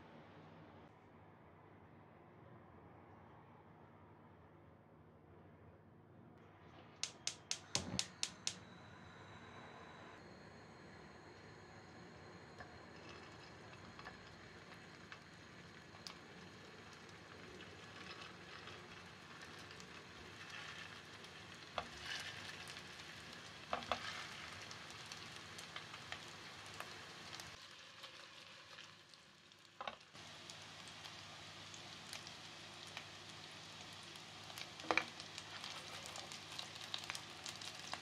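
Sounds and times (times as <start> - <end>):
food sizzling in a pan: 11.3 - 38.0.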